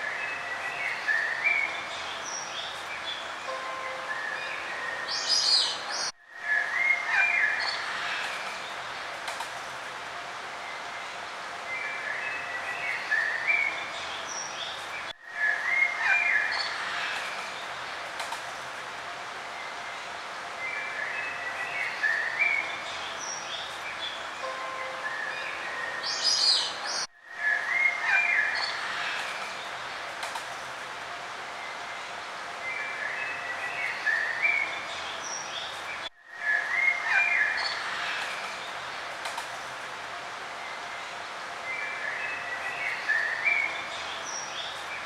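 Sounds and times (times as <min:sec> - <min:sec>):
outdoor background hiss: 0:00.0 - 0:45.0
birds chirping and singing: 0:03.9 - 0:08.8, 0:20.7 - 0:29.5.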